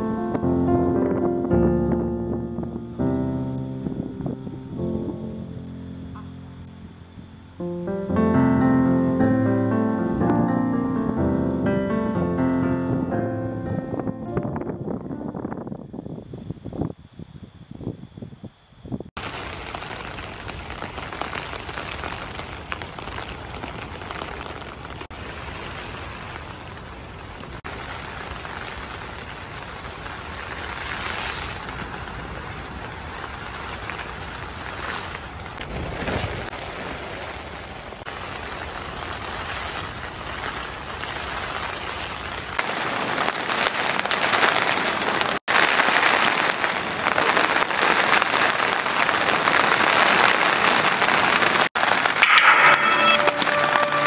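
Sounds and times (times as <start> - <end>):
rain on tent fabric: 19.1 - 54.0
heavy downpour: 19.2 - 54.0.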